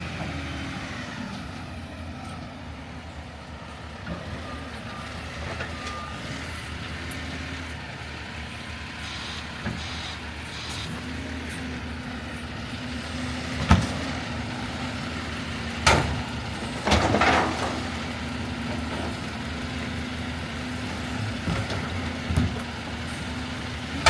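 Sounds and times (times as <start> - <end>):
truck engine running: 0.0 - 24.0
high beep: 9.0 - 11.0.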